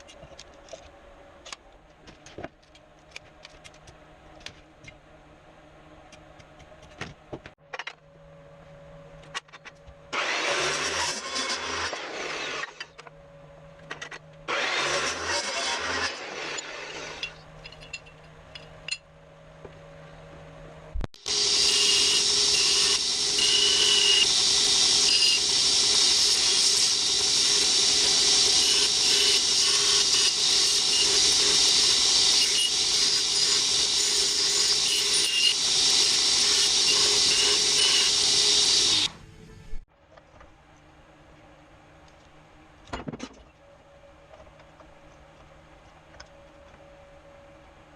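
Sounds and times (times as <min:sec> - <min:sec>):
band saw cutting steel: 0:10.1 - 0:12.9, 0:14.5 - 0:17.4, 0:21.2 - 0:39.2.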